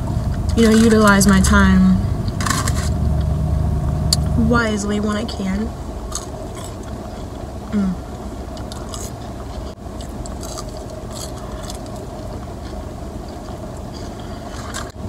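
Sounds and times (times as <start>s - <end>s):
car engine hum: 0.0s - 15.0s
crunchy fries being chewed: 6.1s - 7.4s, 8.1s - 15.0s.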